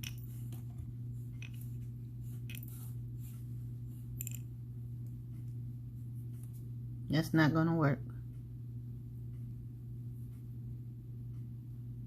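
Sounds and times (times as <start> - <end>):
steady low hum: 0.0 - 12.0
beads clicking together: 4.1 - 4.5.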